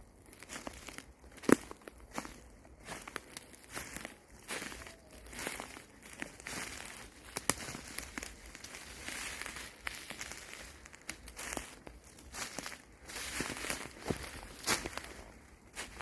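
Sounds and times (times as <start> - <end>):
footsteps crunching through dry leaves: 0.0 - 16.0
twigs snapping: 4.6 - 16.0.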